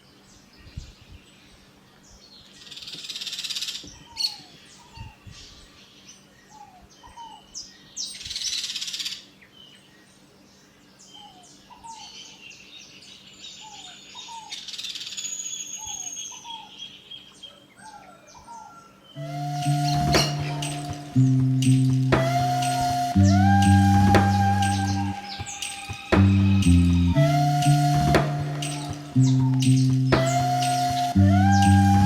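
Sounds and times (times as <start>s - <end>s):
music: 19.2s - 32.0s.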